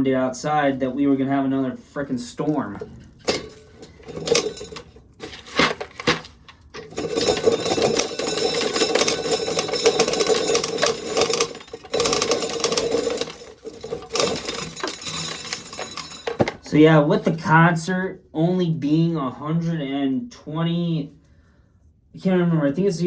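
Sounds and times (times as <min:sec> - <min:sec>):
corn sheller rattling: 0:02.6 - 0:16.8.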